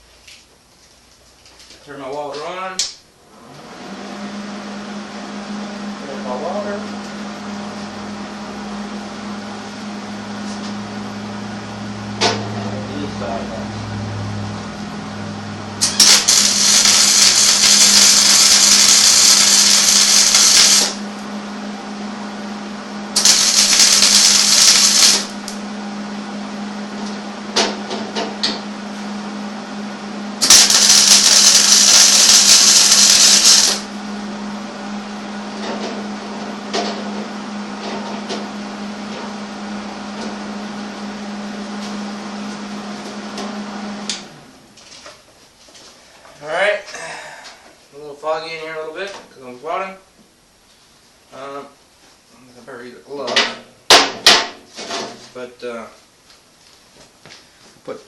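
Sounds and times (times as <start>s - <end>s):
steady hum: 5.5s - 44.7s
crackling sizzling welding arc: 15.8s - 21.2s, 23.2s - 25.6s, 30.4s - 33.9s.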